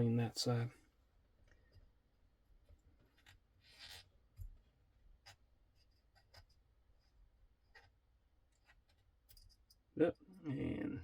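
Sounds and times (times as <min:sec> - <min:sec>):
scratchy scrubbing of knife: 0:03.2 - 0:04.1.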